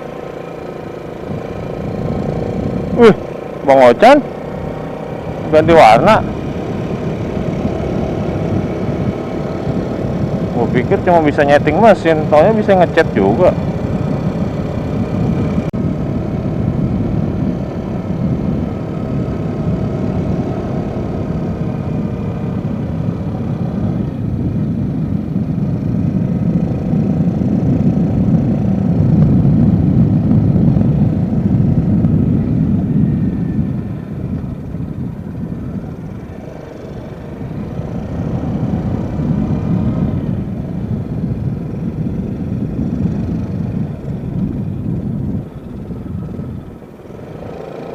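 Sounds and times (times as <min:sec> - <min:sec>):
motorcycle engine running: 0:00.0 - 0:47.9
wind rumble: 0:00.0 - 0:47.9.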